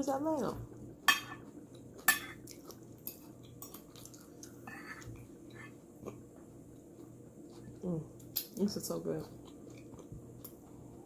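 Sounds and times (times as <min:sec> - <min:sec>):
cutlery clinking on a plate: 0:01.1 - 0:01.4.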